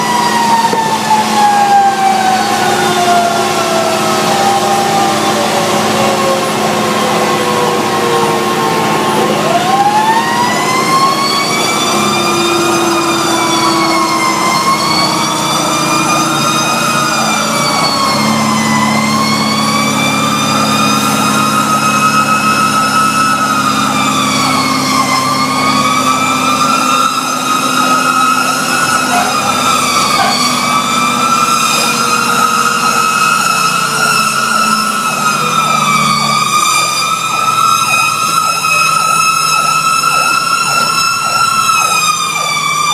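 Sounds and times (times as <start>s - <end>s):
fire truck siren wailing: 0.0s - 42.9s
truck engine humming: 0.0s - 42.9s.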